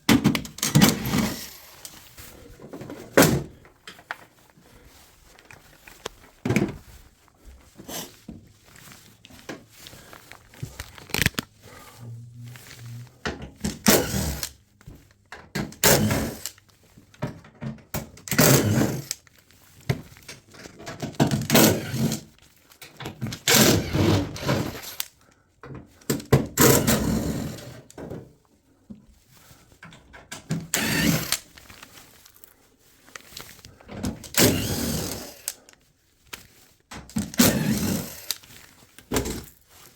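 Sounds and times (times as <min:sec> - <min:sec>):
washing machine parts clattering: 0:00.0 - 0:04.3.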